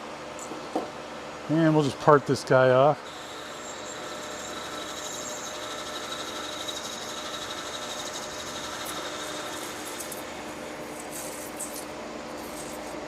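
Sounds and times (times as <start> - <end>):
metal lathe whining: 3.0 - 11.8
tool cutting metal workpiece: 3.1 - 13.0.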